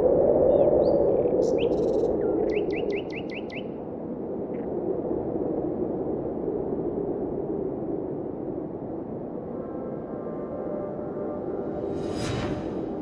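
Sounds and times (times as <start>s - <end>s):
bird chirps: 0.8s - 3.7s
low rushing noise: 6.7s - 13.0s.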